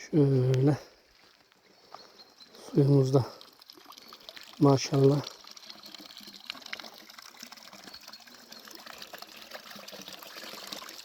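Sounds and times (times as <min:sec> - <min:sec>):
fountain water running and splashing: 0:02.4 - 0:11.0.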